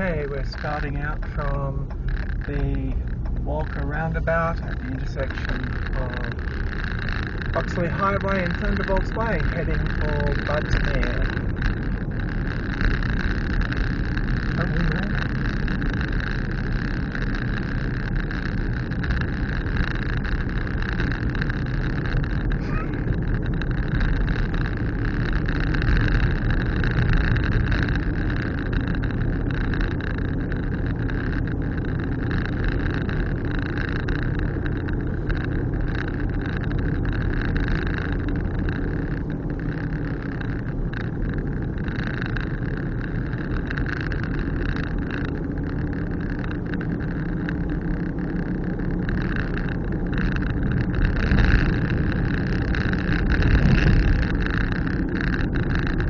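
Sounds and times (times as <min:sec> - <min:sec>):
engine and tyres rumbling: 0:00.0 - 0:56.0.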